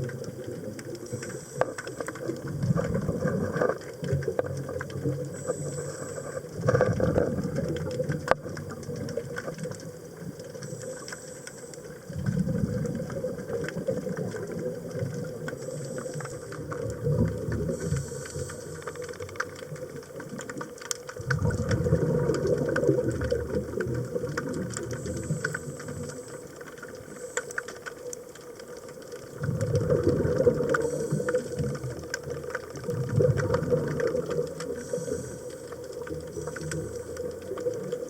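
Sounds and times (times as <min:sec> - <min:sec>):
exhaled bubbles rushing underwater: 0:00.0 - 0:38.0
faint crackling clicks: 0:00.0 - 0:38.0
regulator inhalation hiss: 0:17.8 - 0:19.1, 0:34.8 - 0:35.9.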